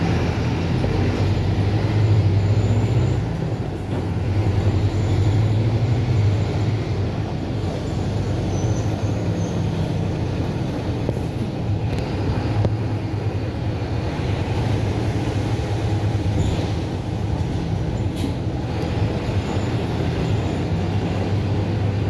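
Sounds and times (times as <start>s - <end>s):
bus diesel engine humming: 0.0s - 22.0s.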